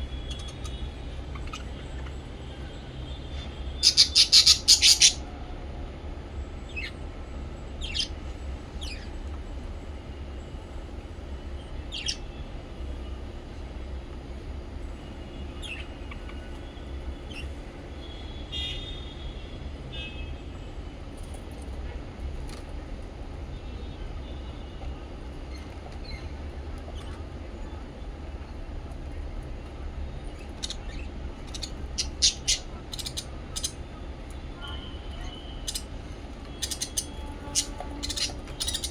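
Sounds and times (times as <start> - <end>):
parrots chirping: 0.2 - 2.2, 3.8 - 5.3, 7.8 - 9.2, 11.6 - 12.4, 15.5 - 17.6, 30.4 - 33.8, 35.2 - 38.9.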